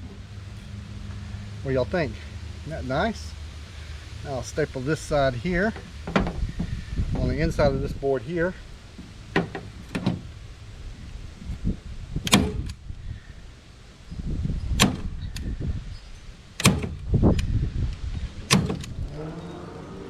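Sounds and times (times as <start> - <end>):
handling noise: 5.6 - 7.6, 8.8 - 10.4.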